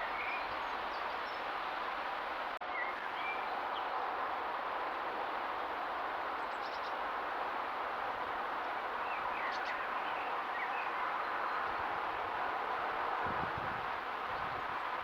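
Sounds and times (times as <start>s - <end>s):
steady background hiss: 0.0s - 15.0s
small birds chirping: 9.0s - 11.7s.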